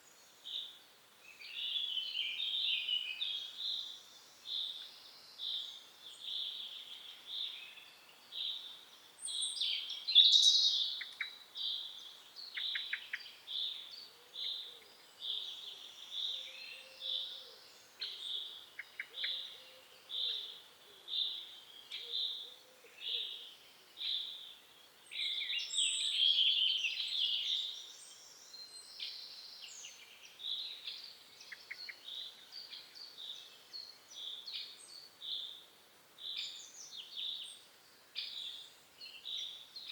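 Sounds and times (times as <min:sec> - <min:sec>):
bird song: 0:00.0 - 0:39.9.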